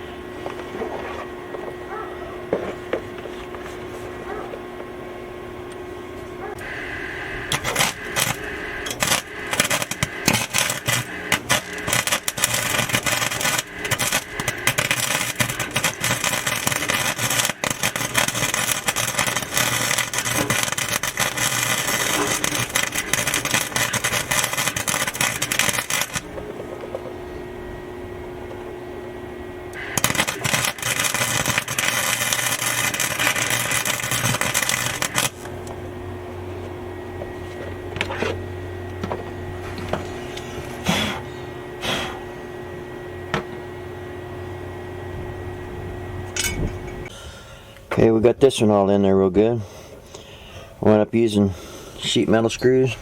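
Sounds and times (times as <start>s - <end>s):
steady hum: 0.0s - 48.7s
welder arcing crackle: 6.5s - 27.7s, 29.7s - 36.0s.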